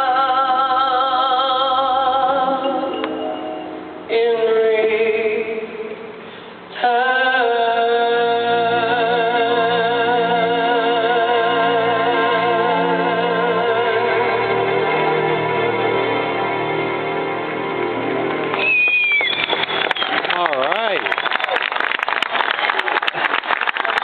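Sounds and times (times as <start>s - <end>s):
low sustained accompaniment: 2.2s - 6.2s, 11.1s - 18.7s
woman singing: 4.1s - 6.0s, 6.8s - 14.6s.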